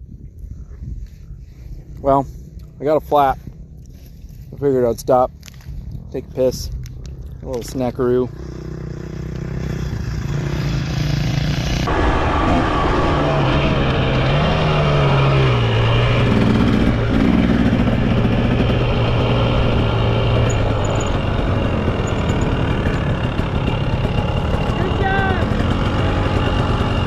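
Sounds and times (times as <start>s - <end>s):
dirt bike engine running: 6.8s - 27.0s
loud steady rush of noise: 11.8s - 22.1s.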